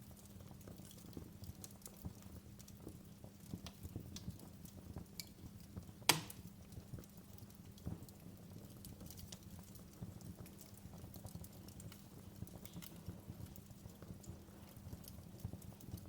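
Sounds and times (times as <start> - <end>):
low fire rumble: 0.0 - 16.0
wood fire crackling: 0.0 - 16.0.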